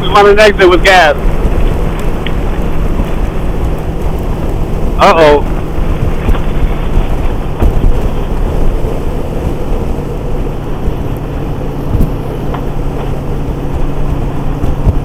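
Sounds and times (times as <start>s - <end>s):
motorcycle engine hum: 0.0s - 15.0s
wind rush on microphone: 0.0s - 15.0s.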